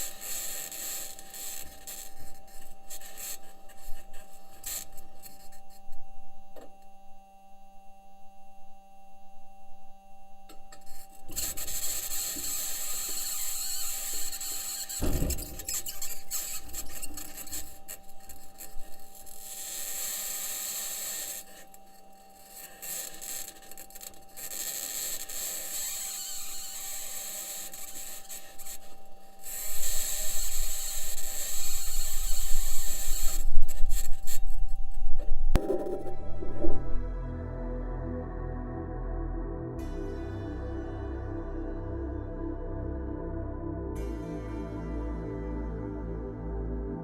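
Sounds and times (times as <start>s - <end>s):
faint steady hum: 0.0s - 47.0s
harsh scraping with squeals: 10.8s - 37.2s
low thud: 15.0s - 16.2s.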